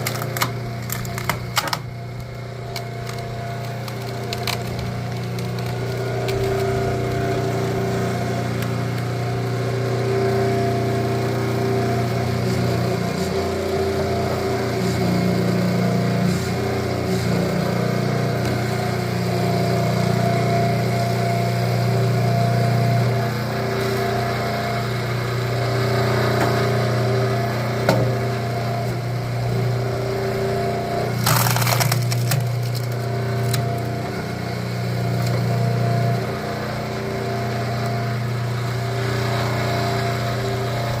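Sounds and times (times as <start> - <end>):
wood cracking and splintering: 0.0 - 9.5, 31.0 - 34.4
log splitter engine running: 0.0 - 41.0.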